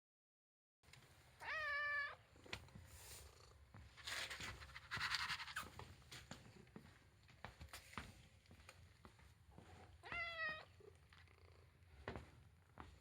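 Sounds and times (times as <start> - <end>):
cat meowing: 1.4 - 2.2, 10.0 - 10.7.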